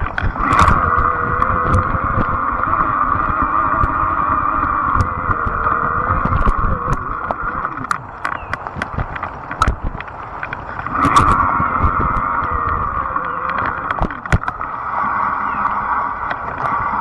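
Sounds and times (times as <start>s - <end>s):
clicks and rattles: 0.0s - 2.8s, 4.9s - 14.7s
electric bike motor hum: 0.0s - 17.0s
wind rumble on microphone: 0.0s - 17.0s.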